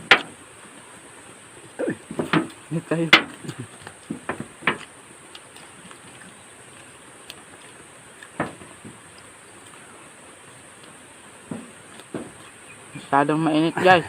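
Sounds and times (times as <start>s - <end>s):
faint steady hiss: 0.0s - 14.0s
mouth sounds of people eating: 1.5s - 4.2s, 4.8s - 13.1s.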